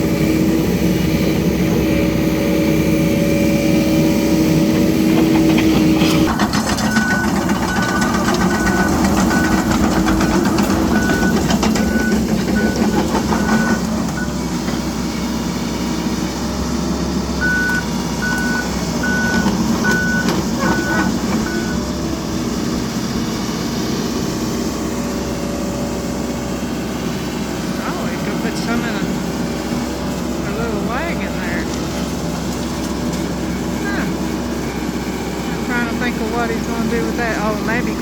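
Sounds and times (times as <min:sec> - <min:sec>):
diesel engine droning: 0:00.0 - 0:38.0
travel alarm beeping: 0:06.7 - 0:14.4, 0:17.4 - 0:21.8.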